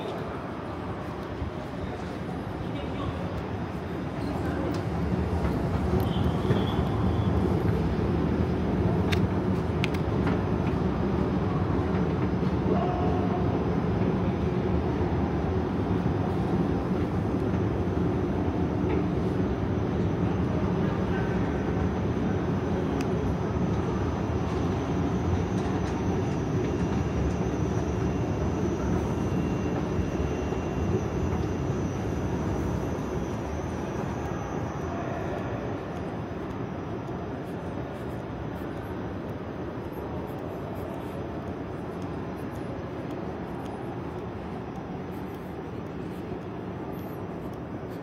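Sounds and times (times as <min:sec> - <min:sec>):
passing train low noise: 0:00.0 - 0:48.0.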